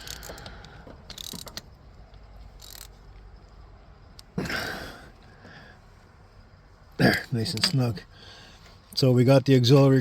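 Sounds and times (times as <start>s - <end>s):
socket ratchet clicking: 0.0s - 3.3s.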